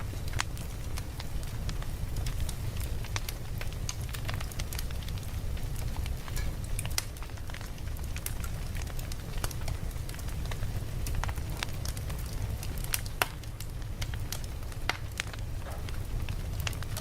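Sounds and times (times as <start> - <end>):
campfire crackling and popping: 0.0 - 17.0
low fire rumble: 0.0 - 17.0.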